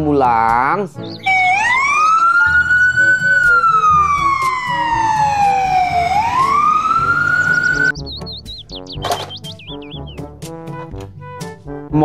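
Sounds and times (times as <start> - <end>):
ambulance siren wailing: 1.2 - 7.9.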